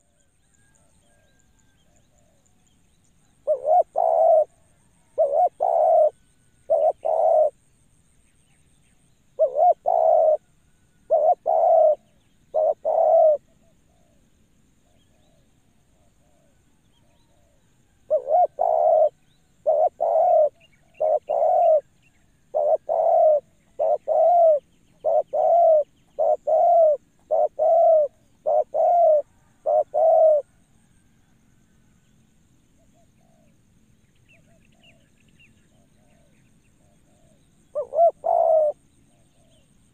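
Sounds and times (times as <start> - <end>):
dove cooing: 3.4 - 7.6, 9.4 - 14.2, 14.8 - 30.6, 35.7 - 39.8.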